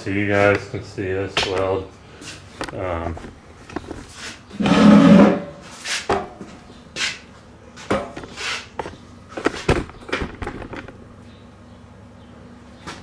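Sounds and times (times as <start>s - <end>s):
camera handling knocks and rustles: 2.6s - 4.1s, 8.2s - 11.0s.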